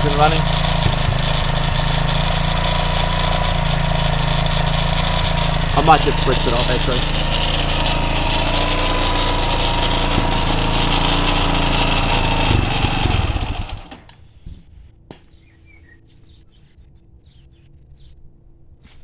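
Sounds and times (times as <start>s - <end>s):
motorcycle engine idling: 0.0s - 14.1s.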